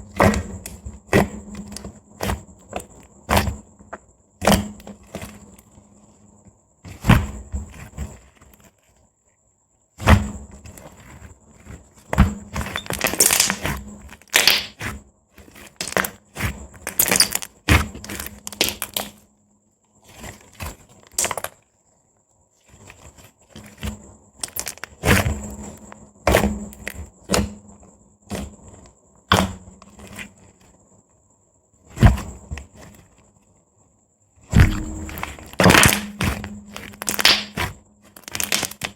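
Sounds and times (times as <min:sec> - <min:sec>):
slime popping and clicking: 0:34.6 - 0:38.9.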